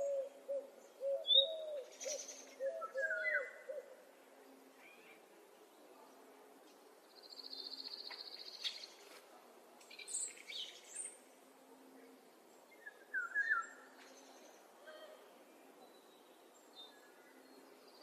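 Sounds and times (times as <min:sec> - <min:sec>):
songbird trill: 0:00.0 - 0:04.0, 0:07.0 - 0:09.1, 0:09.8 - 0:11.3, 0:12.4 - 0:18.0
faint outdoor hiss: 0:00.0 - 0:18.0
bird chirps and whistles: 0:13.1 - 0:13.7.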